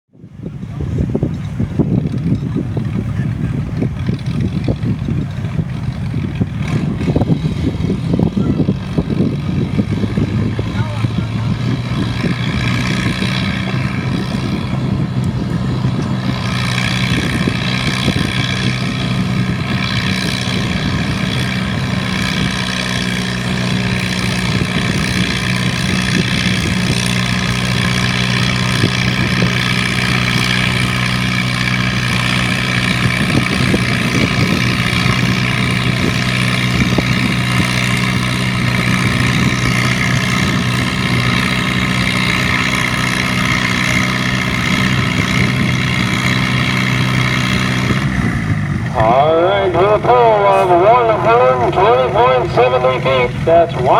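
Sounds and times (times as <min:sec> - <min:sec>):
tractor engine running hard: 0:00.1 - 0:53.9.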